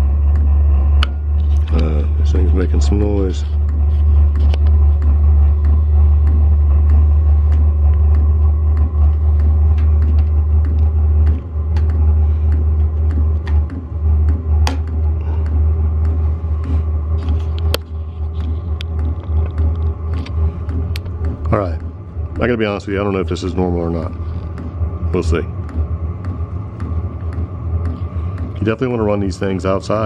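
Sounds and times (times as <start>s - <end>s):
air heater low rumble: 0.0s - 30.0s
fan whir: 0.0s - 30.0s
sharp ticks: 0.0s - 30.0s.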